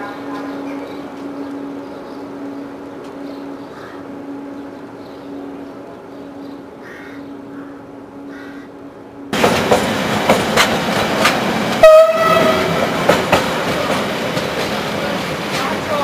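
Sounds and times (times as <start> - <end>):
train clacking over rail joints: 0.0 - 1.8, 9.3 - 16.0
train horn blast: 11.8 - 13.0.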